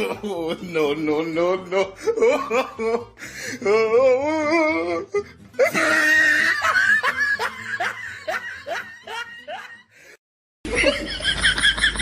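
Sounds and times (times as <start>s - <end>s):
person laughing hard: 1.7s - 3.3s, 5.6s - 9.9s, 10.7s - 12.0s.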